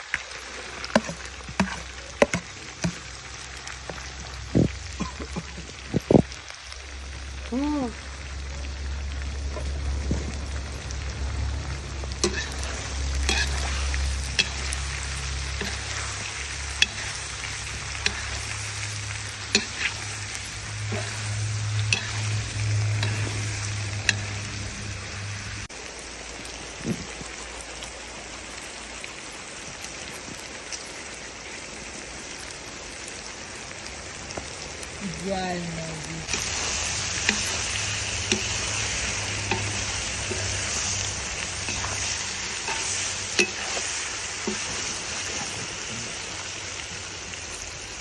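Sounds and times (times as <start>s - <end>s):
food sizzling in a pot: 0.0s - 48.0s
utensil scraping a pot: 0.9s - 3.0s, 12.2s - 24.4s, 36.3s - 45.8s
low hum: 3.9s - 25.7s, 36.0s - 45.8s.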